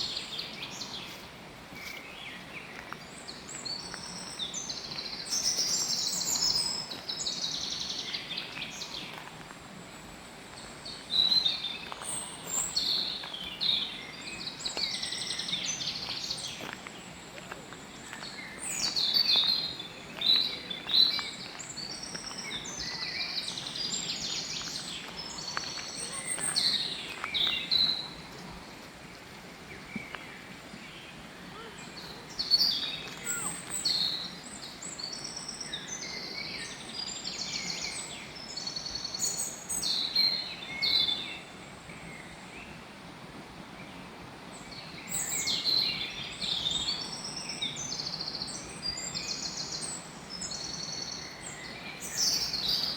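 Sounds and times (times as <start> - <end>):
birds singing and chirping: 17.7 - 28.8, 29.7 - 41.5, 44.8 - 52.9.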